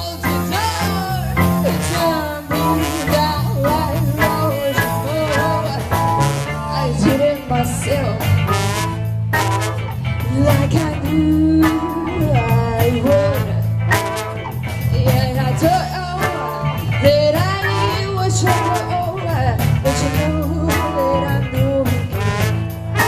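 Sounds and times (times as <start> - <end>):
person singing: 0.0 - 8.8, 10.2 - 14.1, 14.9 - 23.0
live blues-rock band: 0.0 - 23.0.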